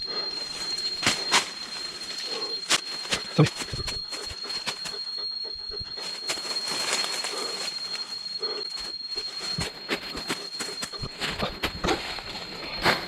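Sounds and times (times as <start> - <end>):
high-pitched insect drone: 0.0 - 13.0
footsteps through undergrowth: 6.0 - 8.0, 8.7 - 13.0.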